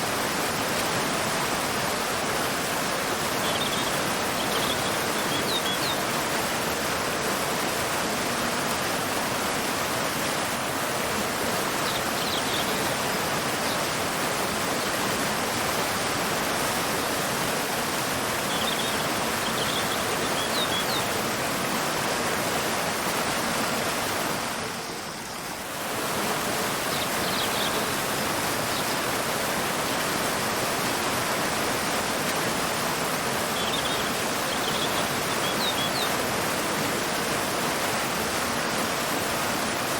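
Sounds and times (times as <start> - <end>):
waterfall and river rushing: 0.0 - 39.9
faint bird chirps: 3.4 - 6.0, 18.5 - 21.1, 26.9 - 28.0, 33.5 - 36.2.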